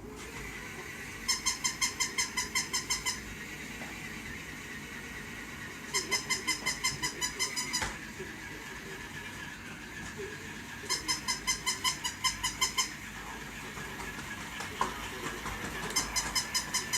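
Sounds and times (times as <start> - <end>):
low hum from toy: 0.0 - 16.9
toy dog electronic yapping: 1.2 - 3.2, 5.9 - 8.0, 10.8 - 13.0, 15.9 - 16.9.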